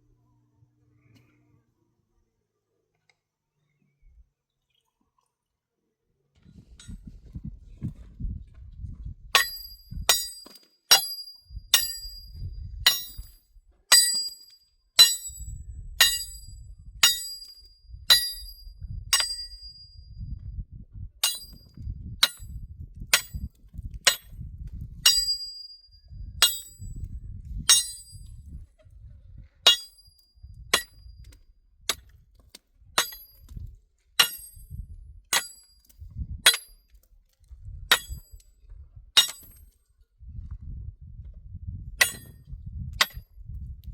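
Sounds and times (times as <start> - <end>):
metallic hammer blows ringing: 15.0 - 20.0, 25.0 - 26.9.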